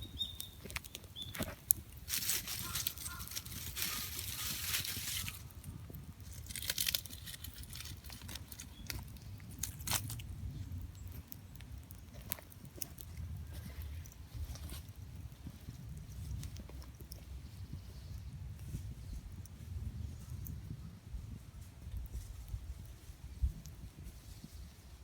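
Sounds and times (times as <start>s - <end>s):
fire pops: 0.0s - 20.7s
campfire crackling: 0.0s - 25.0s
rustling hiss: 1.4s - 5.7s.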